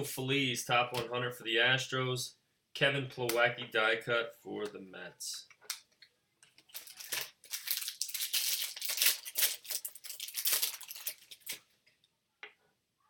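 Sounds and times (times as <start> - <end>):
foil wrapper crinkling: 6.6 - 11.7.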